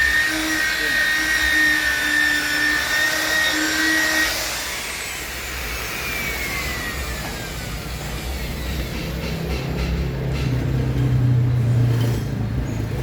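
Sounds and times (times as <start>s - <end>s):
power tool motor whine: 0.0s - 8.7s.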